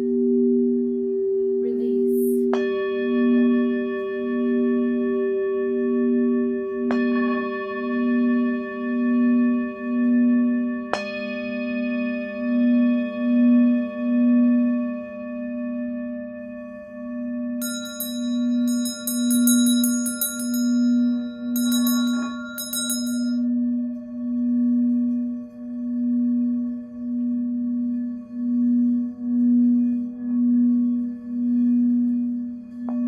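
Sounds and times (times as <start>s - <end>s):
singing bowl humming tone: 0.0s - 33.0s
high metallic chime strikes: 17.6s - 23.6s.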